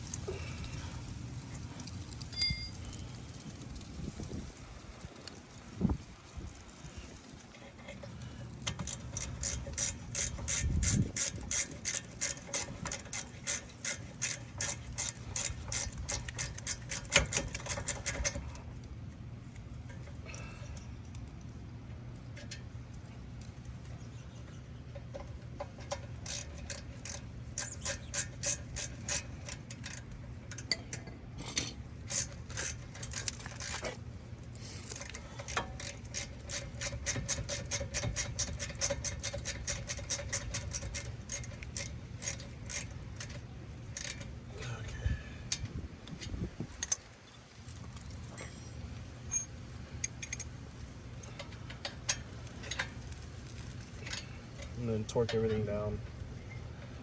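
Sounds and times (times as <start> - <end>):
ratchet wrench clicking: 8.7 - 18.5, 26.2 - 30.8, 32.1 - 34.0, 34.9 - 44.3, 50.0 - 50.5.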